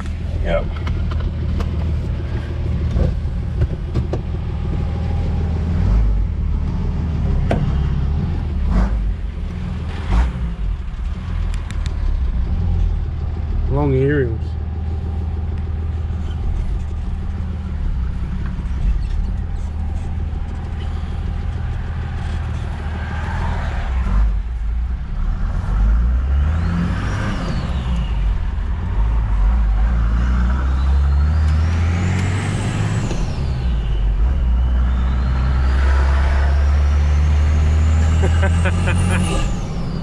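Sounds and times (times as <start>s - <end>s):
diesel engine accelerating: 0.0s - 40.0s
turbo whistling: 32.7s - 36.6s.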